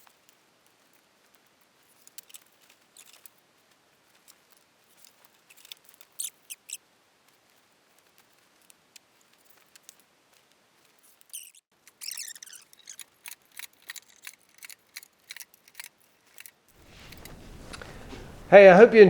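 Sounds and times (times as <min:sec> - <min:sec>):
short high-pitched squeaks: 0:05.6 - 0:06.8, 0:11.1 - 0:15.9.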